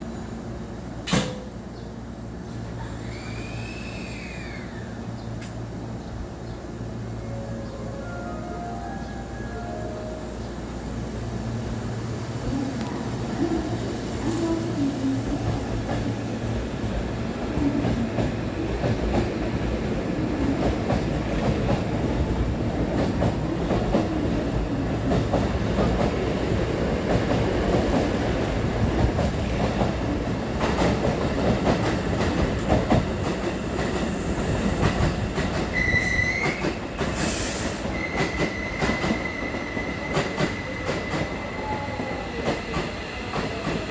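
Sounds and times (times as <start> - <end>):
train wheels rumbling on rail: 9.8 - 43.9.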